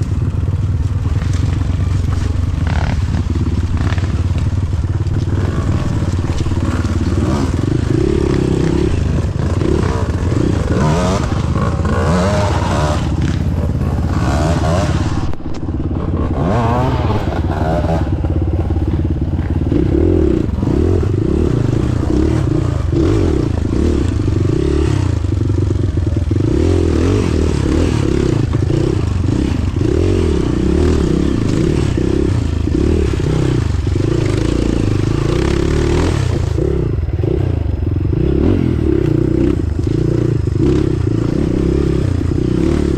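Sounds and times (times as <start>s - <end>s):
clattering and scraping over rough ground: 0.0s - 36.8s
off-road vehicle engine driving: 0.0s - 42.9s.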